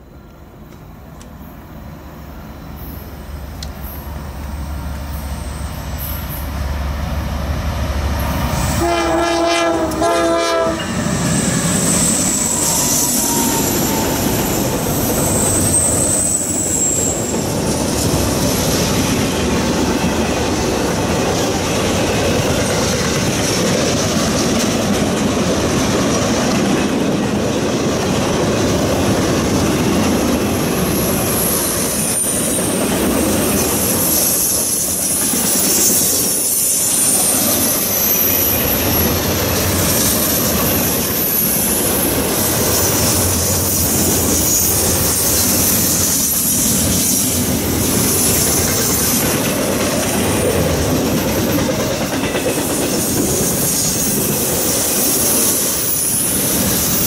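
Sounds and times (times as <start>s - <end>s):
diesel locomotive engine rumble: 0.0s - 57.0s
high wheel squeal: 1.8s - 6.6s, 10.7s - 19.2s, 30.6s - 49.4s, 52.7s - 57.0s
train air horn: 8.6s - 14.6s
wheel-on-rail noise: 9.7s - 57.0s.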